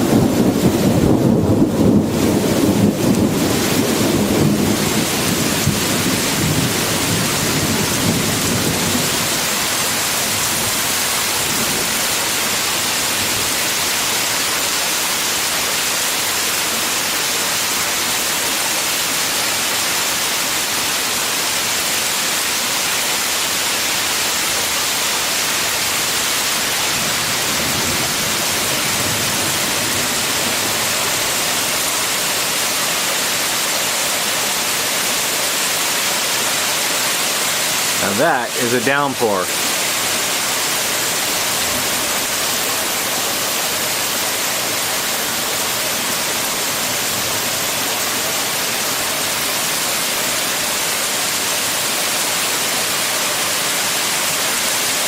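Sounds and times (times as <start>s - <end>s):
thunder rumbling: 0.0s - 9.2s
heavy rain falling: 0.0s - 55.0s.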